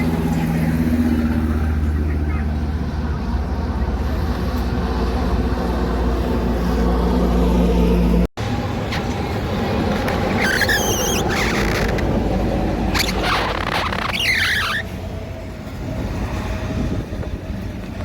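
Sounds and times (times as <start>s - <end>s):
heavy truck engine droning: 0.0s - 18.0s
road traffic noise: 0.0s - 18.0s
wavering high-pitched squeal: 10.3s - 12.0s, 12.8s - 15.1s.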